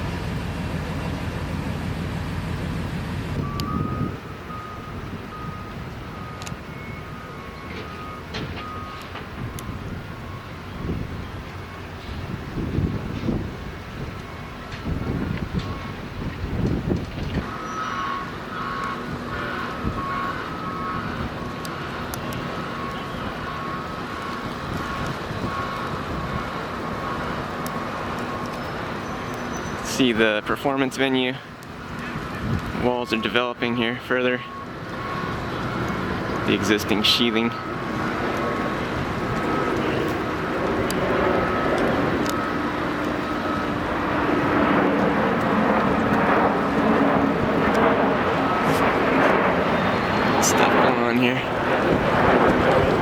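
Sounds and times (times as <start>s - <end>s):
drone motors humming: 0.0s - 30.0s, 34.4s - 53.0s
traffic: 0.0s - 53.0s
truck engines rumbling: 0.0s - 53.0s
two-tone reversing alarm beeps: 3.4s - 12.1s, 15.5s - 16.0s, 17.4s - 27.4s, 32.8s - 38.1s, 41.0s - 44.1s.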